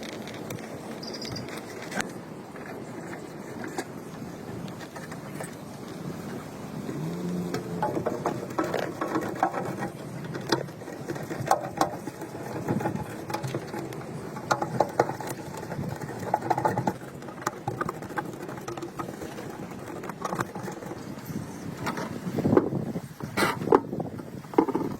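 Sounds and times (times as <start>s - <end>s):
small mechanical clicks and rattles: 0.0s - 3.9s.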